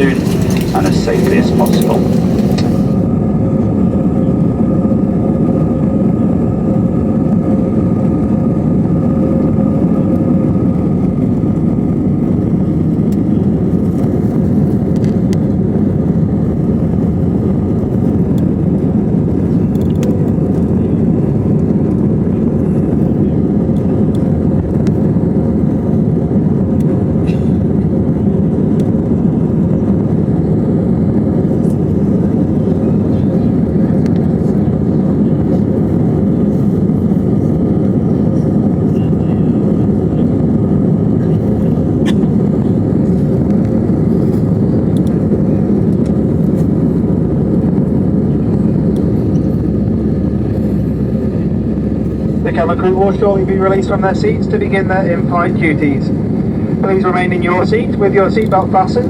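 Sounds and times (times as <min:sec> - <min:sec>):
faint steady whine: 0:00.0 - 0:03.1, 0:46.8 - 0:59.0
jet engine rumble in cabin: 0:00.0 - 0:59.0.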